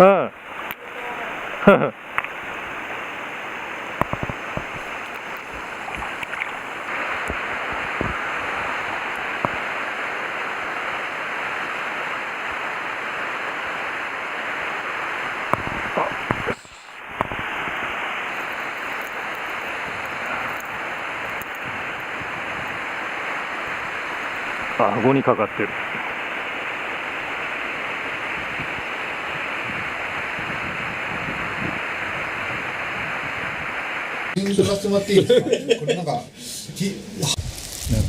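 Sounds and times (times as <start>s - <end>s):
stream water rushing: 0.0s - 34.4s.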